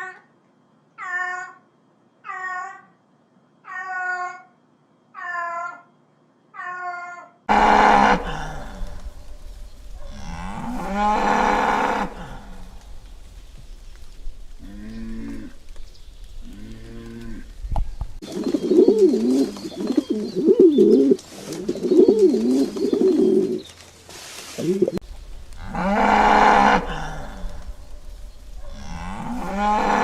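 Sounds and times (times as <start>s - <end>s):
loud animal calls: 1.0s - 3.0s, 3.6s - 5.9s, 6.5s - 9.1s
cows mooing: 7.5s - 9.0s, 10.0s - 12.8s, 16.5s - 17.5s, 25.6s - 27.8s, 28.6s - 30.0s
dove cooing: 18.2s - 23.7s, 24.6s - 25.0s.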